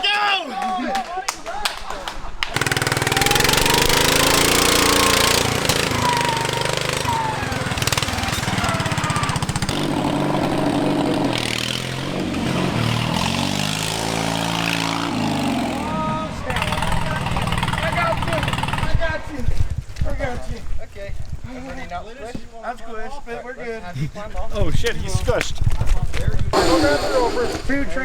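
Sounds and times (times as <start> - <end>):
mower engine revving hard: 2.6 - 19.0, 26.6 - 27.8
loud rushing noise: 26.6 - 28.0.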